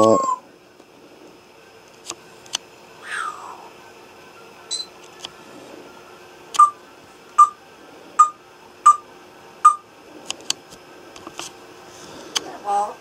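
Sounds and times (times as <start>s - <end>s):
parrot beep-like clicks: 4.7s - 4.9s, 6.6s - 6.8s.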